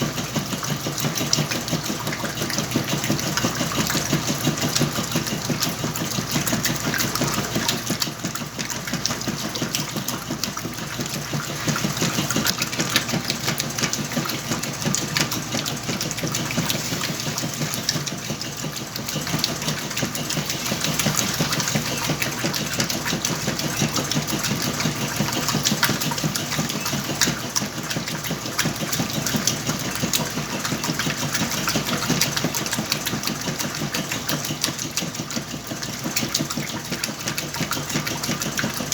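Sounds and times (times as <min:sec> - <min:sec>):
washing machine running: 0:00.0 - 0:38.9.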